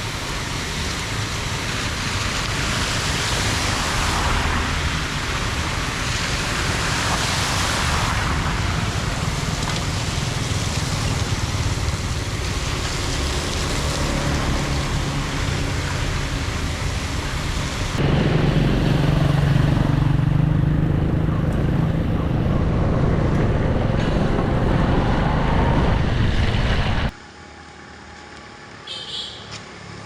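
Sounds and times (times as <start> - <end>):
floodwater rushing into drain: 0.0 - 18.0.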